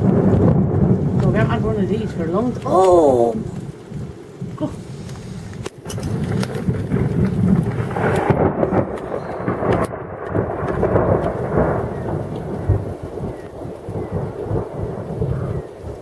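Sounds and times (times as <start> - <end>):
rain falling: 0.0 - 16.0
thunder rumbling: 0.0 - 16.0.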